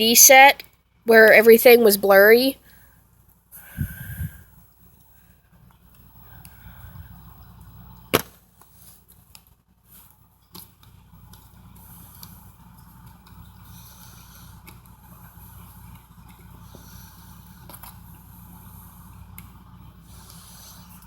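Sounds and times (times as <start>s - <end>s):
low hum: 3.6s - 8.5s.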